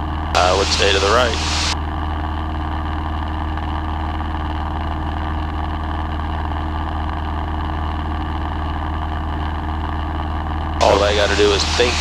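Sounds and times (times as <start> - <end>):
light aircraft engine droning: 0.4 - 1.8, 10.8 - 12.0.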